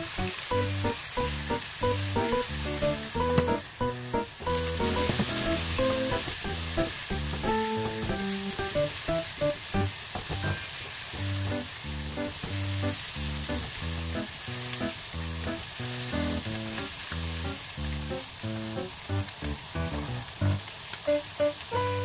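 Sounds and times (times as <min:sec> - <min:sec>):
plucked rhythmic background music: 0:00.0 - 0:10.6
shrimp sizzling in hot oil: 0:00.0 - 0:22.0.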